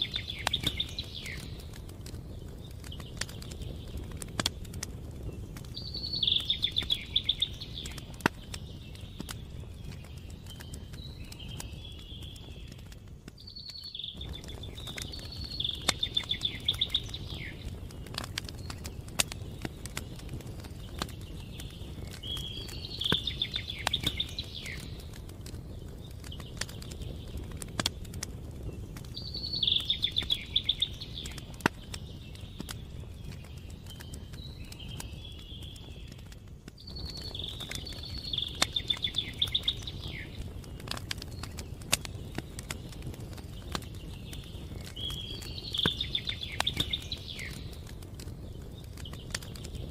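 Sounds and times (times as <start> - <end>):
campfire crackling and popping: 0.0 - 49.9
songbird trilling: 29.2 - 31.4.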